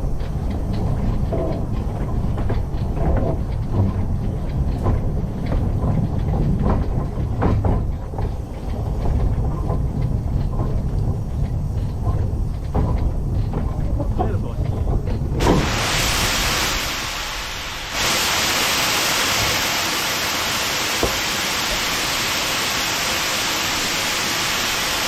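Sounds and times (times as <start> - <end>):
wheels clanking and rattling: 0.0 - 15.9
train rumbling: 0.0 - 25.0.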